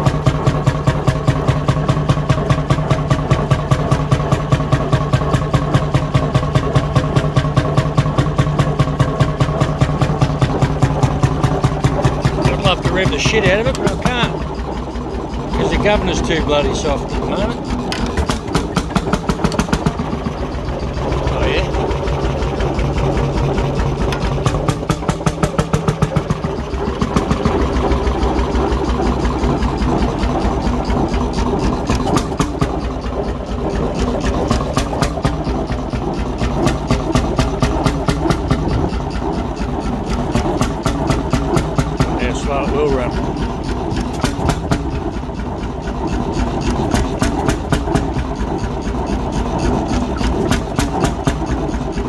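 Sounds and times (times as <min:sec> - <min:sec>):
hot-bulb engine running slowly: 0:00.0 - 0:52.0.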